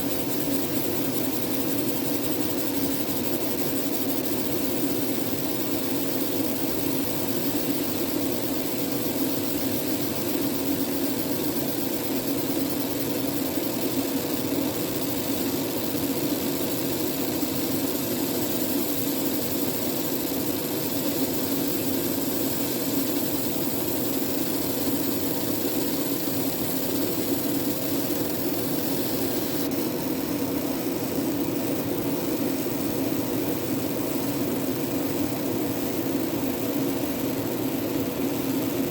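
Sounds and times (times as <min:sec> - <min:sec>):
laser engraving machine humming: 0:00.0 - 0:38.9.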